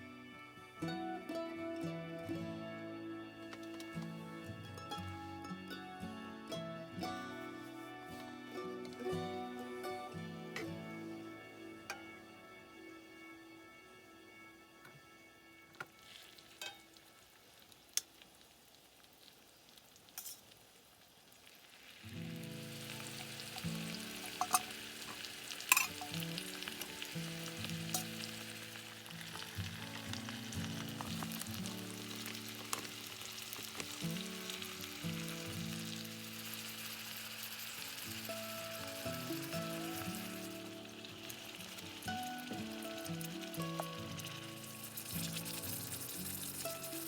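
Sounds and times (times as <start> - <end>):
background music: 0.0 - 17.4, 22.1 - 47.0
food sizzling in a skillet: 15.8 - 47.0.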